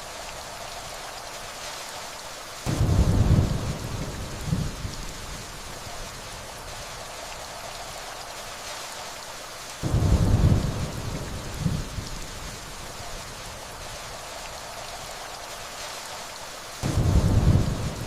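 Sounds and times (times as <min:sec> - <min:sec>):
steady rainfall: 0:00.0 - 0:18.0
distant thunder rumble: 0:02.7 - 0:05.0, 0:09.8 - 0:12.6, 0:16.8 - 0:18.0.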